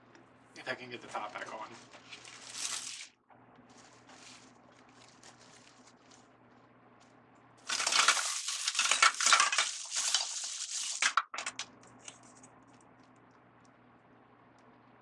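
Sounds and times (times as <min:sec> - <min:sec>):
crackling and clinking handling noise: 0:01.3 - 0:13.2.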